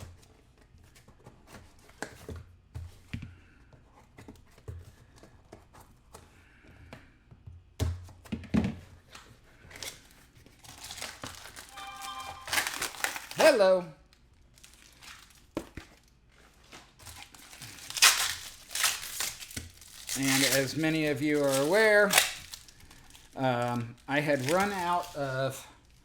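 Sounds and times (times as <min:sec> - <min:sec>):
packaging tearing and crinkling: 0:09.7 - 0:11.7, 0:12.7 - 0:13.7, 0:14.5 - 0:26.0.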